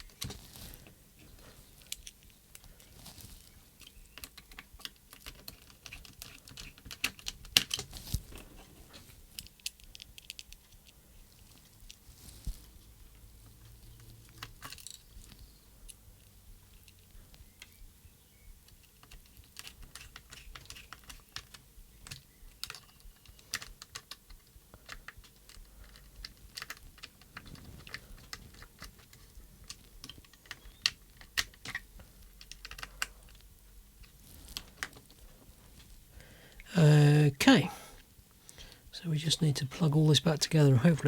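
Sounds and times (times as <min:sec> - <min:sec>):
small plastic and metal clicks: 0:03.5 - 0:08.6, 0:09.3 - 0:12.0, 0:18.6 - 0:35.3.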